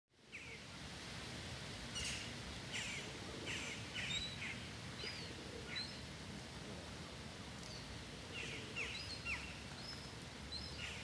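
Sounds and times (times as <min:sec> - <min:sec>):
outdoor ambience hiss: 0:00.1 - 0:11.0
small birds chirping: 0:07.6 - 0:11.0.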